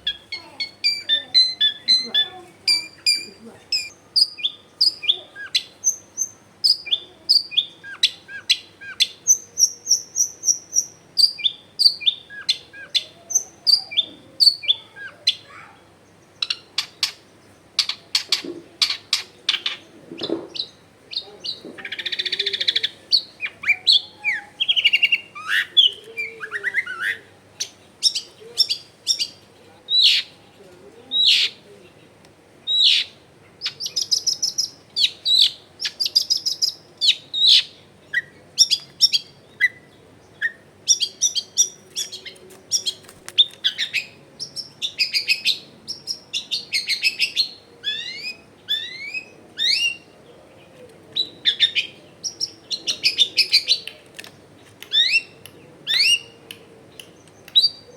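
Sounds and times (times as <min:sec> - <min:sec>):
harsh rasping bird call: 0:00.0 - 0:15.8, 0:31.1 - 0:31.6, 0:32.7 - 0:38.4
bird singing chirps and whistles: 0:00.1 - 0:14.8, 0:42.8 - 0:50.1.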